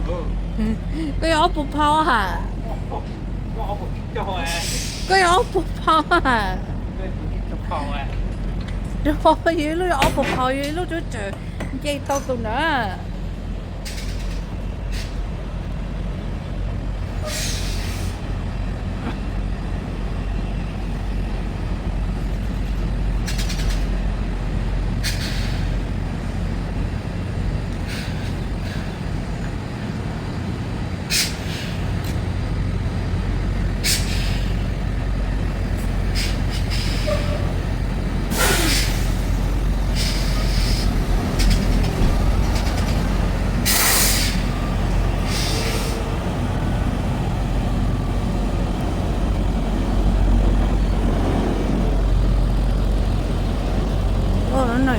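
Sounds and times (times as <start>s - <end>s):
heavy truck engine running: 0.0s - 54.9s
air brake hisses: 4.5s - 5.2s, 17.2s - 18.2s, 25.0s - 25.8s, 31.1s - 31.8s, 33.8s - 34.6s, 36.2s - 37.5s, 38.3s - 41.5s, 43.6s - 44.5s, 45.2s - 46.0s.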